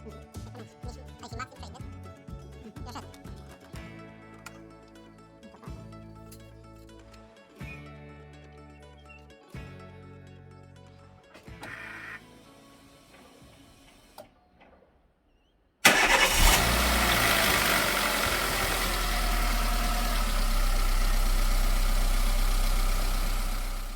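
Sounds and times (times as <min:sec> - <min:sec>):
car engine starting and idling: 0:15.8 - 0:23.9.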